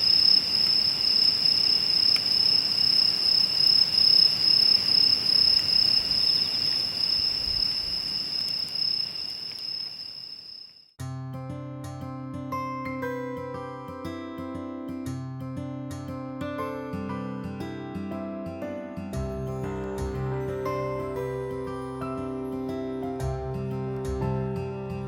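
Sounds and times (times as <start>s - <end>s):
wood fire crackling: 0.0s - 10.6s
crickets trilling: 0.0s - 10.9s.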